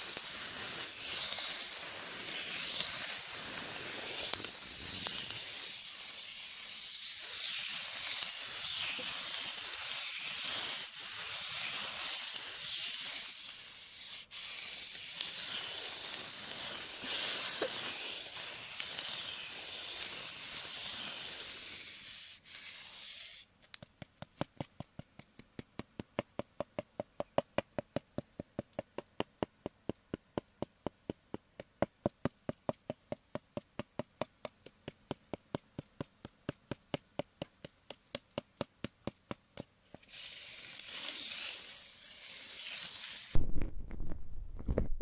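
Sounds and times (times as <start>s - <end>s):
scratchy rubbing on microphone: 0.0s - 23.5s, 39.9s - 45.0s.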